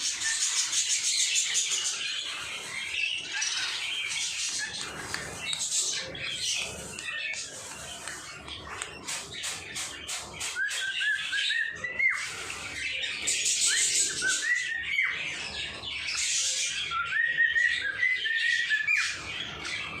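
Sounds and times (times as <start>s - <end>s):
birds whistling: 0.0s - 20.0s
scratchy bird chatter: 0.0s - 20.0s.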